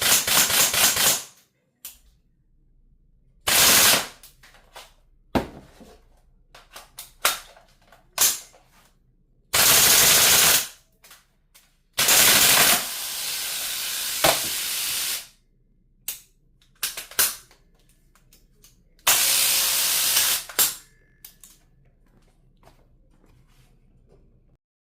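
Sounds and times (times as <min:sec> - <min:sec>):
gel blaster noisy bursts: 0:12.0 - 0:15.3.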